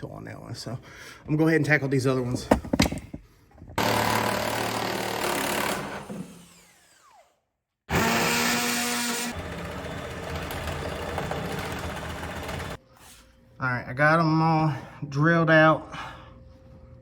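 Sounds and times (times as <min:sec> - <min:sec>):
power drill drilling metal: 0:03.8 - 0:12.8.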